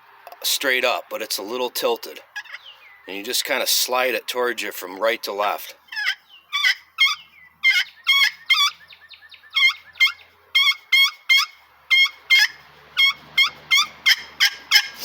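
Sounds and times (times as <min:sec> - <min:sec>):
turkey call squealing notes: 0:02.4 - 0:02.8, 0:05.9 - 0:15.0.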